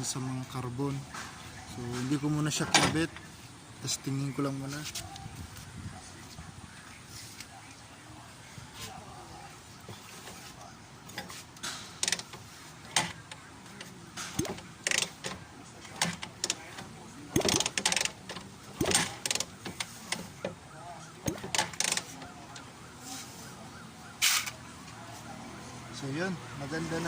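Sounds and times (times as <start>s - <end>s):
motorcycle kickstarter ratchet clacking: 11.1s - 20.6s, 21.2s - 22.4s
engine turning over without starting: 14.2s - 20.4s, 21.2s - 22.4s.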